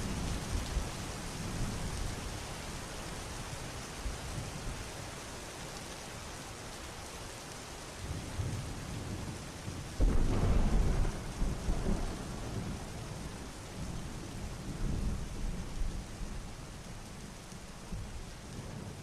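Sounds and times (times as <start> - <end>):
steady rain: 0.0 - 19.0
thunder rumbling: 10.0 - 16.6.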